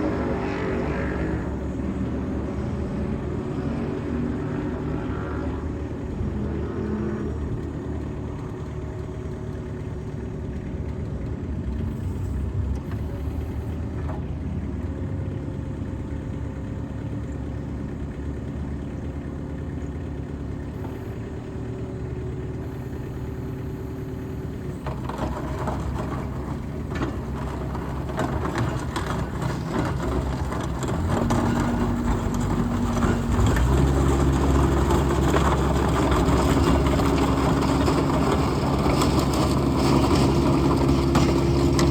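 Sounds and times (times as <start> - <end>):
diesel engine running: 0.0 - 41.9
rattling clattering noise: 24.8 - 41.9.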